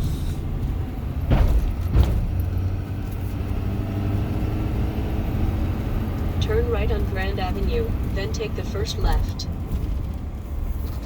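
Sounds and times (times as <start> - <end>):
heavy thumps: 0.0 - 3.3
truck engine and road drone: 0.0 - 11.0.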